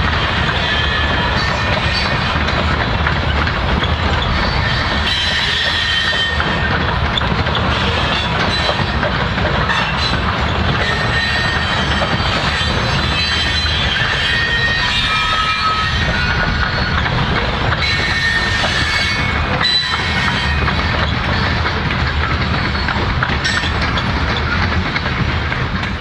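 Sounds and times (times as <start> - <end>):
train wheels rumbling on rails: 0.0 - 26.0
high-pitched wheel squeals: 4.1 - 6.8, 9.7 - 17.1, 17.8 - 21.6.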